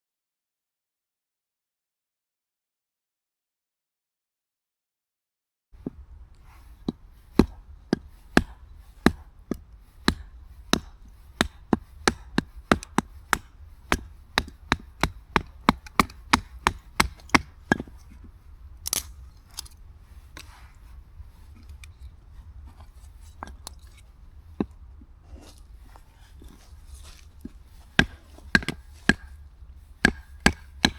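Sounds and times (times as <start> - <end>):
scrape: 6.4 - 9.4, 20.1 - 24.2, 25.2 - 29.4
chopping on wood: 6.6 - 18.2, 26.4 - 29.4, 30.0 - 30.9.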